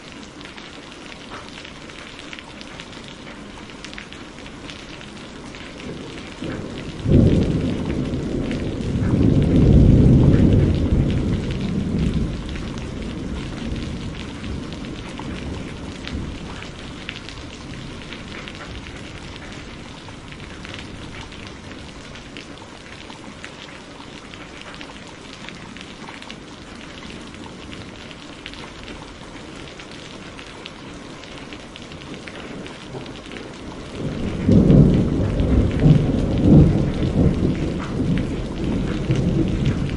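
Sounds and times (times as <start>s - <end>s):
heavy rain: 0.0s - 39.9s
thunder rumbling: 5.4s - 22.6s, 31.6s - 39.9s.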